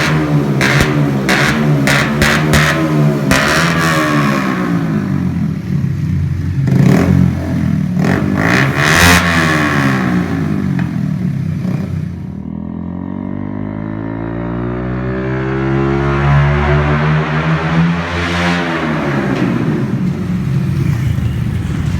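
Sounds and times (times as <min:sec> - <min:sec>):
exhaust backfire pops: 0:00.0 - 0:05.4, 0:08.1 - 0:12.4, 0:18.3 - 0:20.8
motorcycle engine revving: 0:00.0 - 0:21.9.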